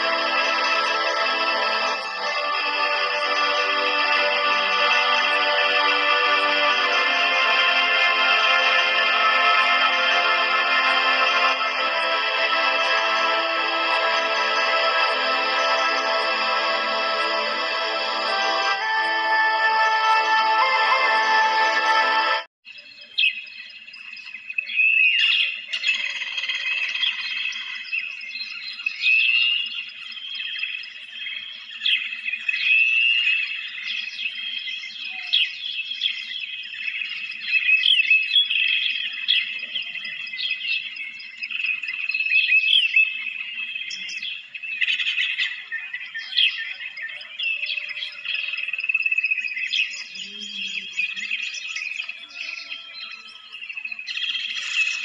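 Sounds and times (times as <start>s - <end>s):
birds chirping chorus: 22.7s - 55.0s.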